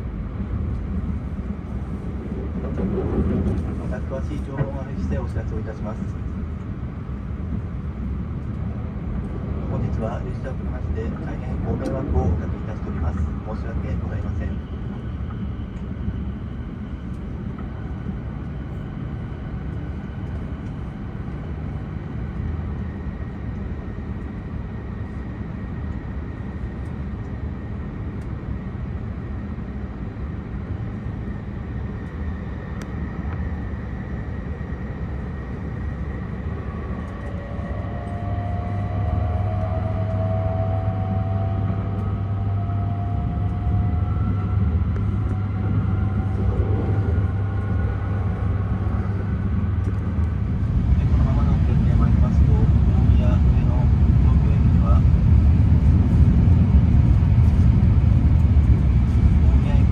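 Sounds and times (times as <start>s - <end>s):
train running rumble: 0.0s - 59.9s
rising whines: 32.4s - 59.8s.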